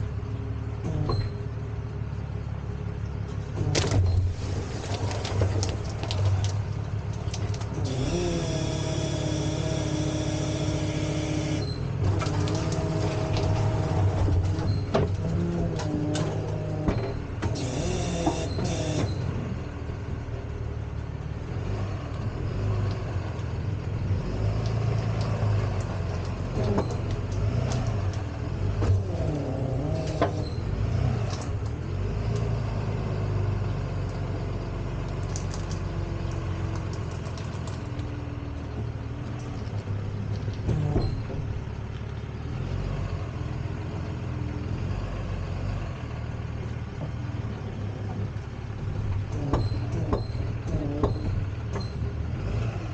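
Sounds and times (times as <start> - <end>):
truck engine running: 0.0 - 52.9
sharp knocks and clanks: 49.1 - 52.0.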